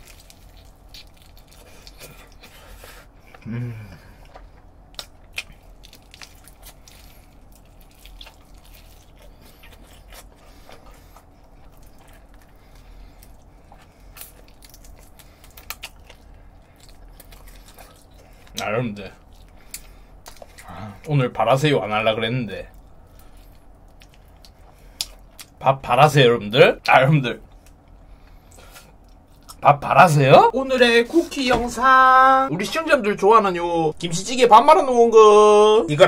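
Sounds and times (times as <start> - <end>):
crunchy chewing: 0.0 - 3.5, 4.1 - 21.1
person humming: 3.4 - 4.1.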